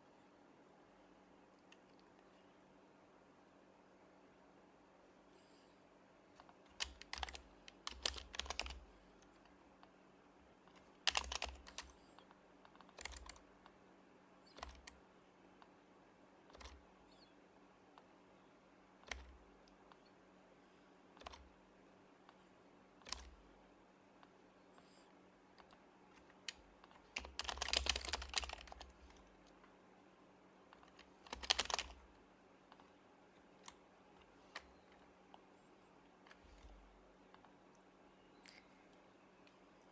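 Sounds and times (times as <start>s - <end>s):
soft muted keyboard typing: 6.3s - 10.0s, 10.6s - 15.8s, 16.4s - 18.2s, 19.0s - 20.2s, 20.9s - 23.6s, 24.2s - 29.8s, 30.6s - 39.9s.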